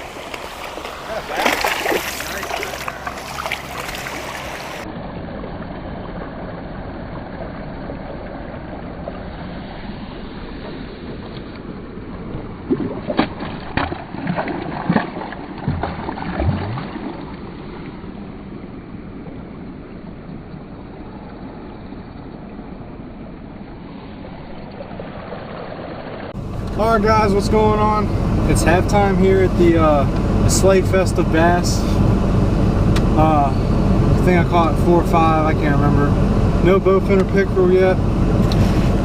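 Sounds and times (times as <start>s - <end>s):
water noise: 0.0s - 39.0s
wind noise: 26.4s - 39.0s.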